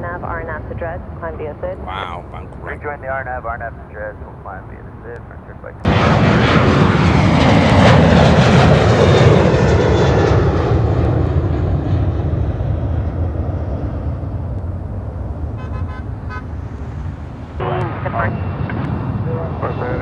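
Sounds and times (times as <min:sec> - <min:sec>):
jet airliner roaring past: 0:05.6 - 0:20.0.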